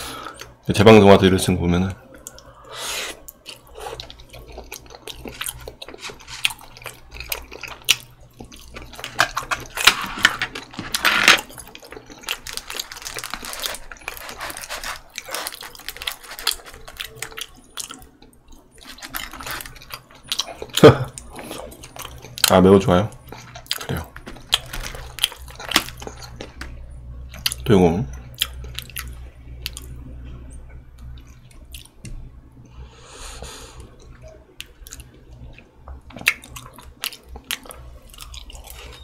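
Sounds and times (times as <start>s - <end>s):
wet chewing and slurping: 2.2s - 10.9s.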